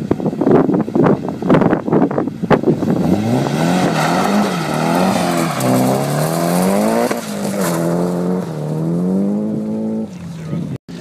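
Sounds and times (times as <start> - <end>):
car engine accelerating through gears: 2.5 - 11.0.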